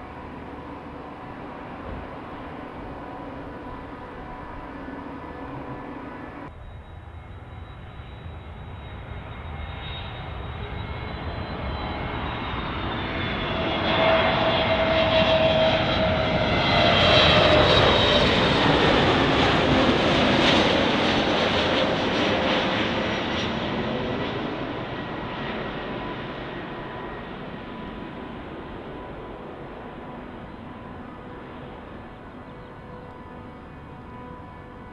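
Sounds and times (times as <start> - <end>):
falling jet engine whine: 0.0 - 34.9
jet airliner engine noise: 0.0 - 34.9.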